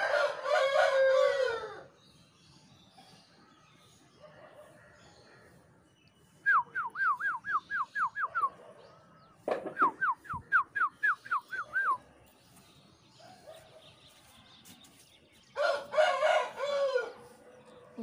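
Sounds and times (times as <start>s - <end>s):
brief thump: 9.5s - 10.0s.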